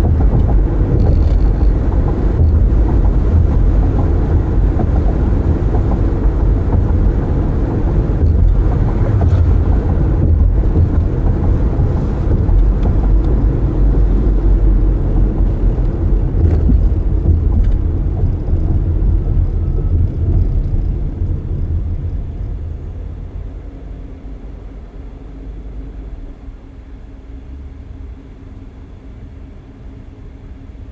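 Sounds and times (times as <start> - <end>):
tyre and wind rumble: 0.0 - 23.7.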